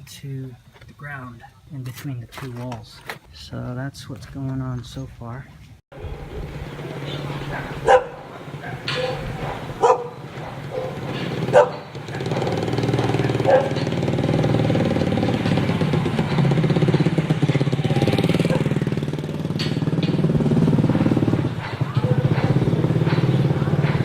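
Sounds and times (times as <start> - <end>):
small motorcycle engine running: 6.0 - 24.0.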